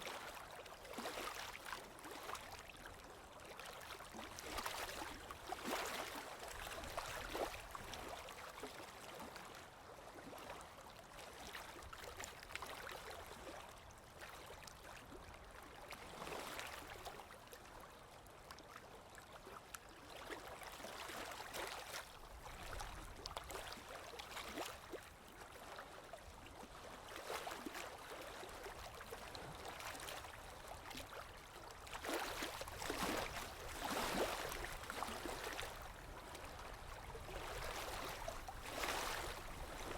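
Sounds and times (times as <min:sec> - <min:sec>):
flowing water gurgling: 0:00.0 - 0:09.2, 0:19.8 - 0:39.9.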